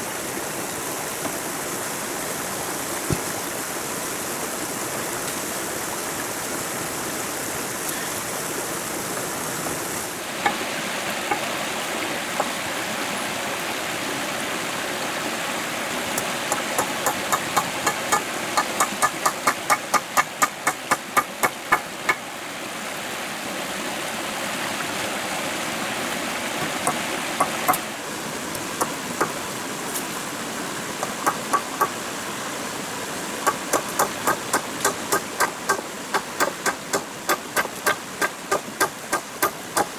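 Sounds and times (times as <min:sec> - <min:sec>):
stream running: 0:00.0 - 0:39.9
tool striking knocks: 0:10.4 - 0:10.7, 0:16.5 - 0:22.2, 0:26.6 - 0:27.8, 0:31.0 - 0:32.0, 0:33.5 - 0:39.9.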